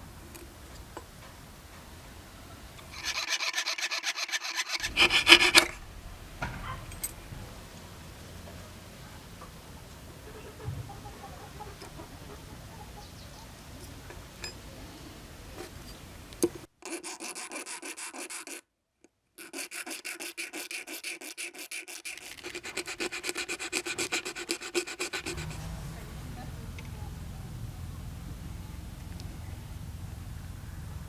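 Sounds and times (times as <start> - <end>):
file rubbing back and forth: 2.8 - 7.5, 16.8 - 18.6, 19.4 - 26.1.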